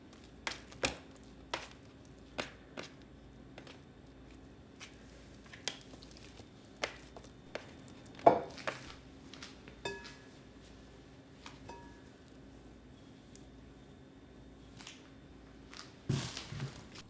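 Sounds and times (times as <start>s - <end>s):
kitchen items knocking and clinking: 7.5s - 9.0s, 16.1s - 17.0s
ringing ceramic clink: 9.8s - 10.3s, 11.7s - 12.1s.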